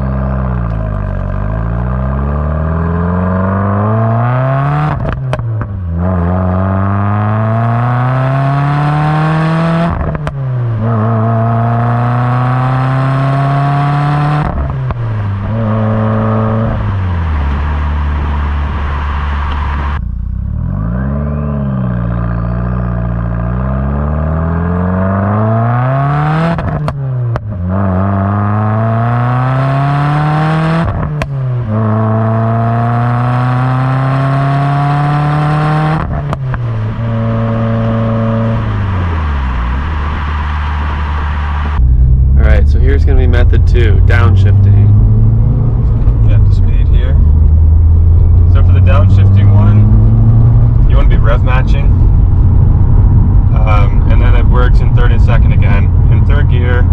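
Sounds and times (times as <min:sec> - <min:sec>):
car engine accelerating: 0:00.0 - 0:56.9
exhaust pops and cracks: 0:05.0 - 0:05.7.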